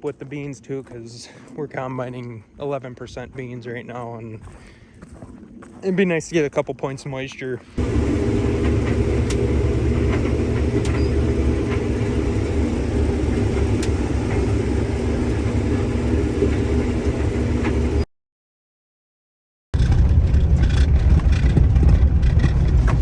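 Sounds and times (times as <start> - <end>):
vehicle engine running: 7.8 - 18.0, 19.8 - 23.0.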